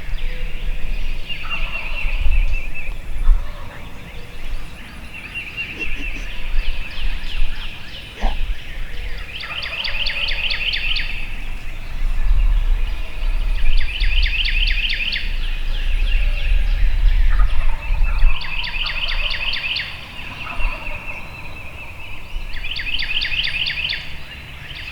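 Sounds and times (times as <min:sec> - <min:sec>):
wild turkeys gobbling: 0:05.3 - 0:06.6.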